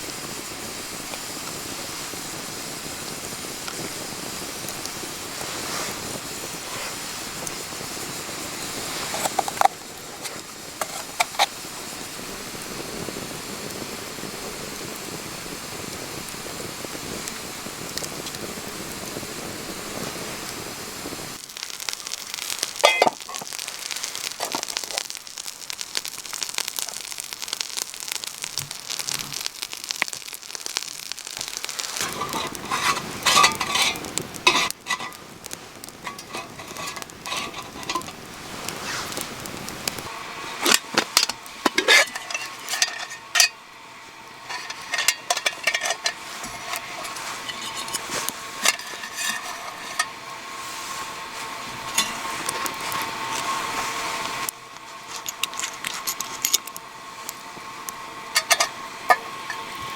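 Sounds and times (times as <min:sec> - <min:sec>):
food sizzling in a pan: 0:00.0 - 0:59.9
utensil clinking against metal: 0:22.8 - 0:23.5, 0:32.0 - 0:35.2, 0:36.0 - 0:38.2, 0:40.7 - 0:43.6, 0:44.4 - 0:50.2, 0:51.9 - 0:52.2, 0:58.3 - 0:59.7.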